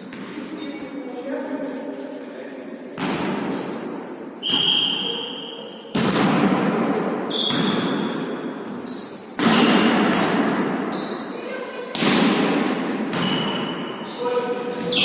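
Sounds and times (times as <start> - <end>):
shoe squeaks: 3.4 - 5.9, 7.3 - 8.1, 8.8 - 9.4, 10.9 - 11.5, 12.6 - 15.0
volleyball bouncing on hard floor: 5.9 - 10.9, 11.9 - 13.8, 14.7 - 15.0.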